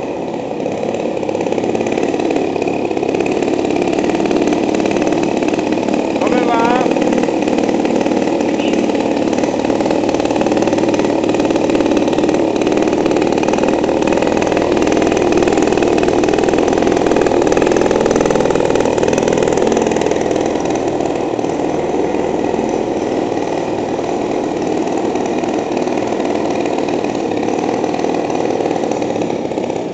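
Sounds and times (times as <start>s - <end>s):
two-stroke engine running steadily: 0.0s - 29.9s.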